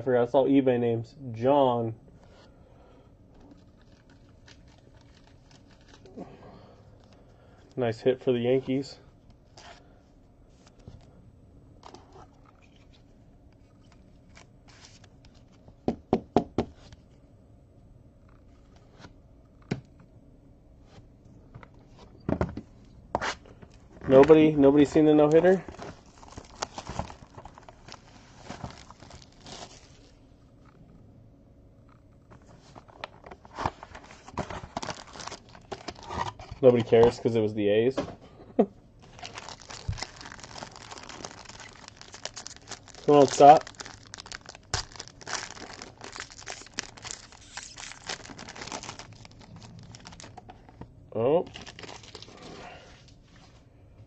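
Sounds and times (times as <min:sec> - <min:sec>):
cards and packaging rustling: 0:03.3 - 0:06.2, 0:11.8 - 0:15.7, 0:23.2 - 0:30.2, 0:32.3 - 0:37.4, 0:39.0 - 0:50.8, 0:51.4 - 0:52.6.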